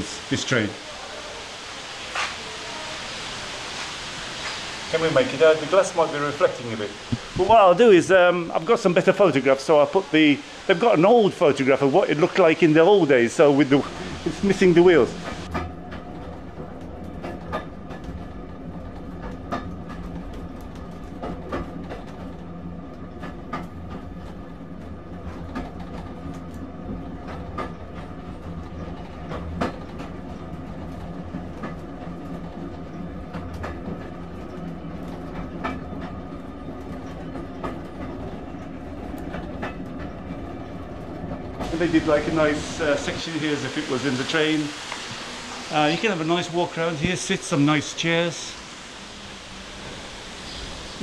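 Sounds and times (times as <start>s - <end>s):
train rumbling on rails: 0.0s - 51.0s
wheel clicks and clacks: 10.7s - 44.7s.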